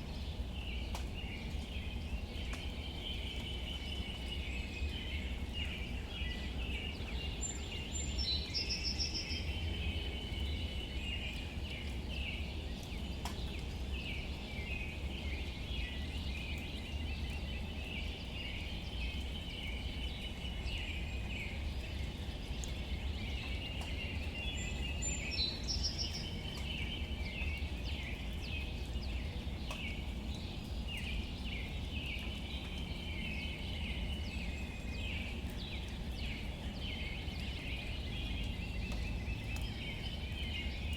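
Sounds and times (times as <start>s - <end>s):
faint ticks: 12.8s - 13.6s.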